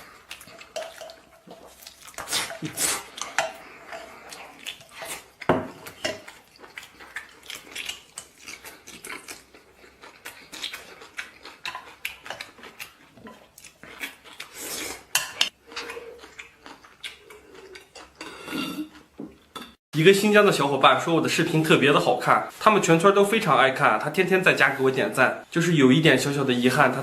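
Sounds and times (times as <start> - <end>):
cutlery clinking against a bowl: 0.6 - 1.2.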